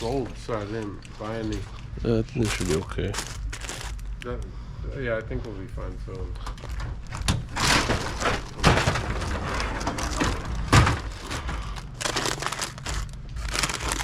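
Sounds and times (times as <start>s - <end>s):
boxes being handled: 0.0s - 4.3s, 6.3s - 14.0s
plastic wrappers crinkling: 0.0s - 4.3s, 6.4s - 14.0s.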